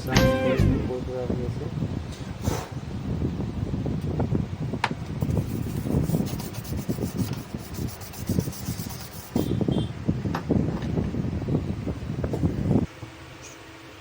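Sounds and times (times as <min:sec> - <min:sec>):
brief high tone: 0:00.0 - 0:01.4
rubbing and scraping handling noise: 0:05.2 - 0:09.5.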